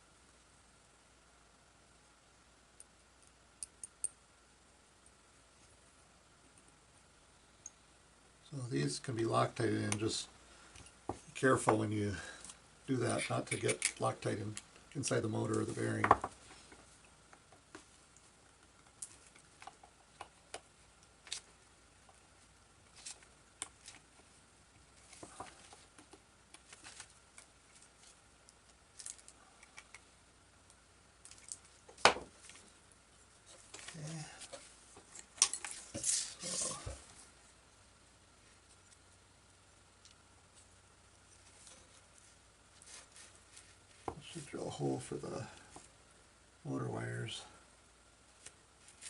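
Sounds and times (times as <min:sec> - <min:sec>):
rustling: 0:10.1 - 0:37.6, 0:40.0 - 0:46.0, 0:48.3 - 0:49.0.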